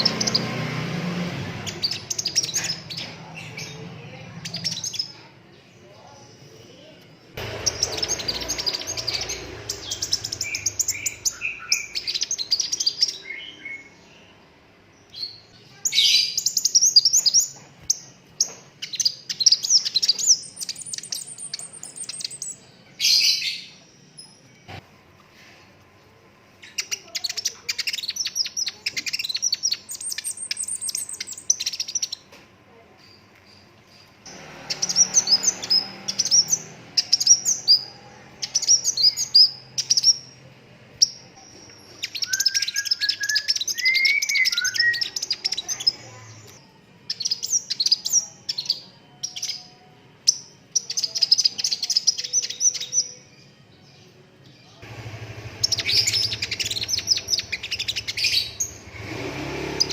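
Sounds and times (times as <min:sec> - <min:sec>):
bird trilling and chattering: 0:00.0 - 0:00.6, 0:01.6 - 0:05.2, 0:07.4 - 0:14.0, 0:15.1 - 0:23.8, 0:26.6 - 0:32.3, 0:34.3 - 0:40.4, 0:41.0 - 0:46.6, 0:55.5 - 0:59.0.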